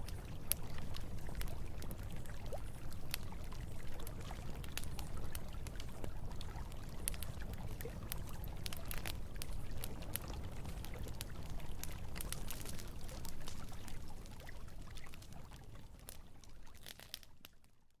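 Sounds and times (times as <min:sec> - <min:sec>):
campfire crackling and popping: 0:00.0 - 0:17.7.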